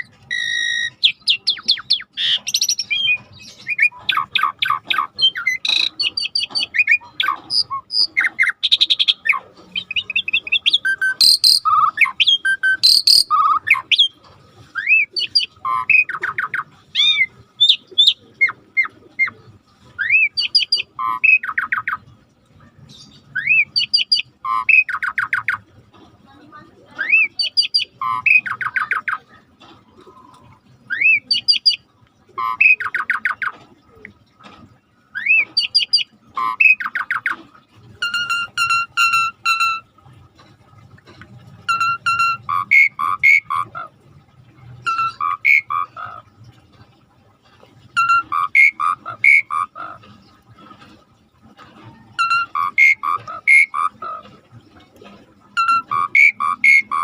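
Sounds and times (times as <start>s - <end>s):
starling singing: 0.0s - 14.2s, 14.8s - 19.4s, 20.0s - 22.0s, 22.8s - 25.6s, 27.0s - 29.2s, 30.9s - 33.5s, 35.2s - 37.4s, 38.0s - 39.9s, 41.7s - 44.0s, 44.8s - 46.3s, 48.0s - 50.4s, 52.2s - 54.2s, 55.6s - 57.0s.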